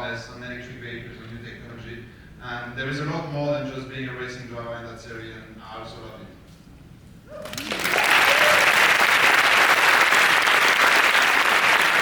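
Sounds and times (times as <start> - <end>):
audience applauding: 7.4 - 12.0
audience cheering: 7.4 - 12.0.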